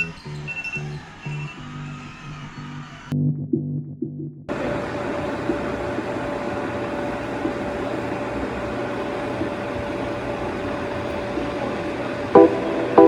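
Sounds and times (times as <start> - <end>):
steady mechanical hum: 4.5 - 13.0
reggae backing music: 12.3 - 13.0.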